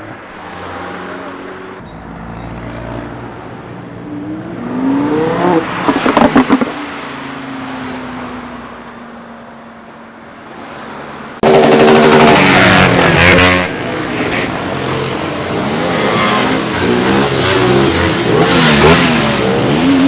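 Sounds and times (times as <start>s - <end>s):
second car engine accelerating hard: 4.0s - 7.8s, 11.4s - 20.0s
car accelerating past: 4.0s - 8.0s
sharp exhaust cracks: 11.4s - 14.8s.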